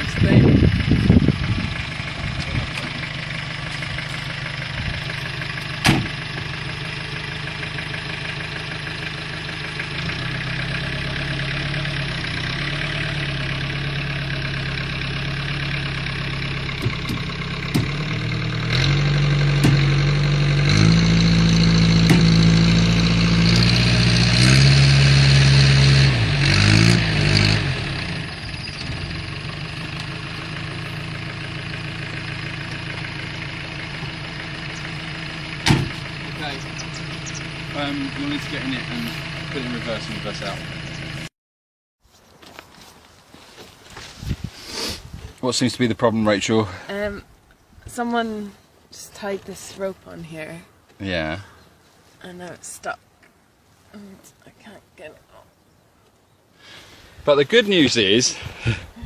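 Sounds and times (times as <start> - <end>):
engine idling and revving: 0.0 - 41.3
sharp knock: 5.8 - 6.1, 35.6 - 36.0.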